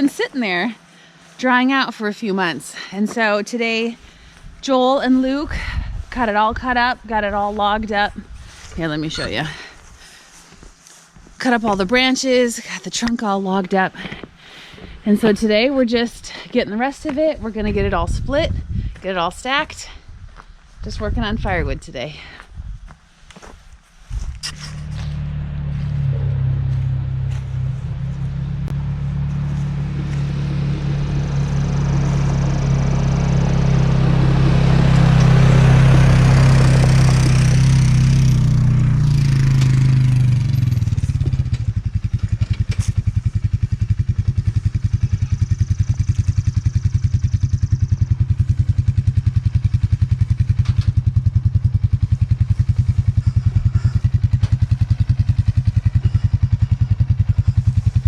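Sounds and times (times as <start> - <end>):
gasoline engine running: 24.4 - 58.0.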